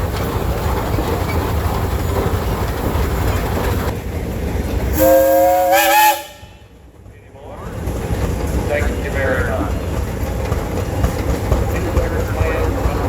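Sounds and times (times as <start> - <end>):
engines rumbling: 0.0 - 13.0
steam whistle blowing: 5.0 - 6.6.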